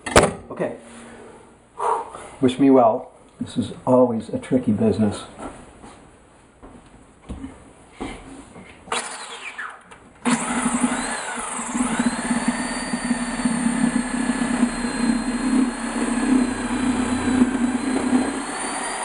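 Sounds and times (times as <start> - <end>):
power tool motor whining: 8.9 - 19.0.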